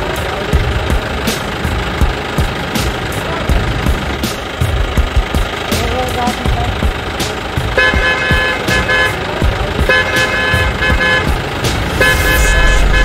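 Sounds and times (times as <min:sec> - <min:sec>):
vehicle horn honking: 0:07.7 - 0:13.0.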